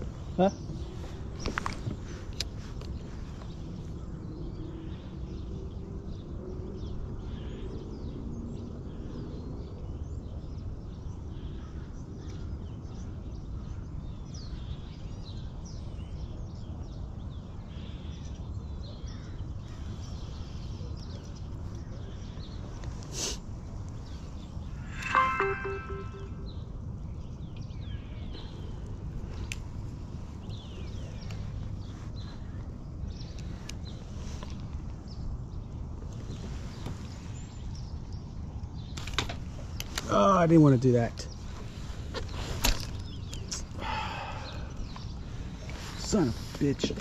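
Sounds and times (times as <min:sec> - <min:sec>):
birds chirping and calling: 0:41.2 - 0:47.0.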